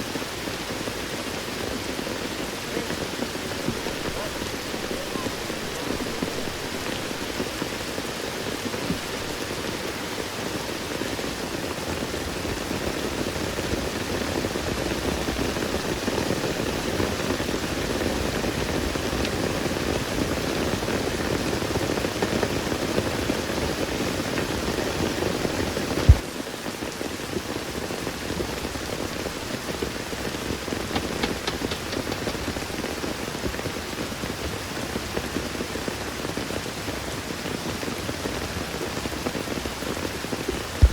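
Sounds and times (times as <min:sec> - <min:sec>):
rain falling in forest: 0:00.0 - 0:40.9
sharp click: 0:30.9 - 0:32.4.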